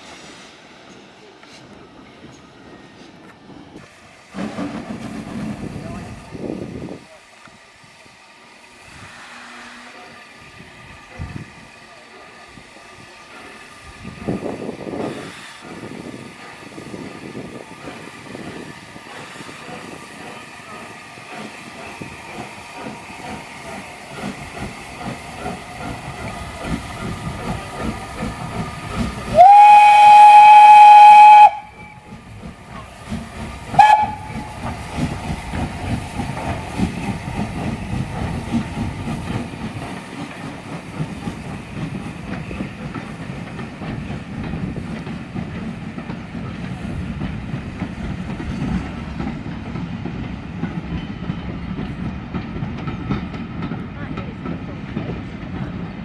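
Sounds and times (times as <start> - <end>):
steam train rumble and wheel clatter: 0.0 - 56.0
steam locomotive whistle: 9.0 - 10.2, 29.3 - 32.2, 33.7 - 34.7.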